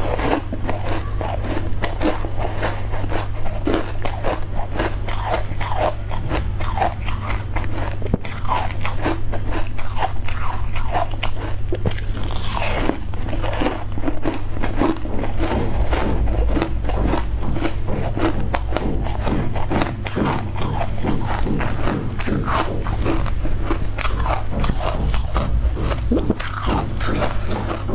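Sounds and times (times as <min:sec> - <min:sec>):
low electrical hum: 0:00.0 - 0:27.9
person chewing cake: 0:00.0 - 0:27.9.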